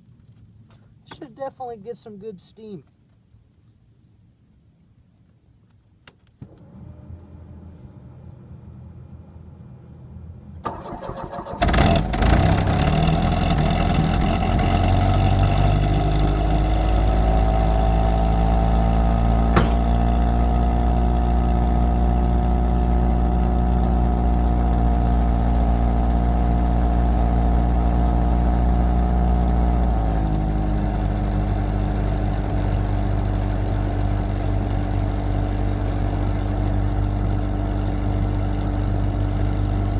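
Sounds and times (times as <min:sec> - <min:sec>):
car starter cranking: 0:10.6 - 0:14.7, 0:19.4 - 0:20.2
car engine idling: 0:10.6 - 0:39.9.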